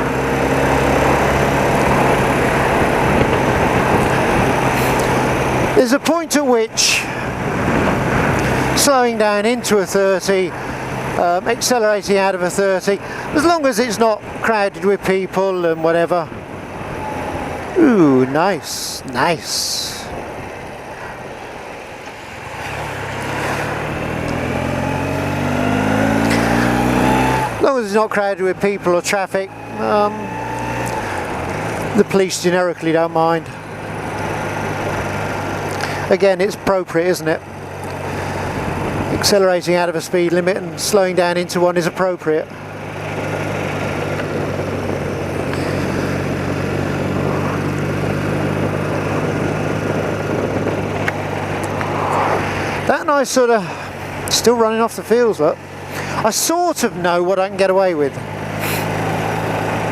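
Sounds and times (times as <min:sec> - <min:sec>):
motorcycle engine accelerating: 0:00.0 - 0:05.9, 0:21.9 - 0:39.6, 0:42.4 - 0:56.4, 0:57.1 - 0:59.9
wind and road noise: 0:00.0 - 0:59.9.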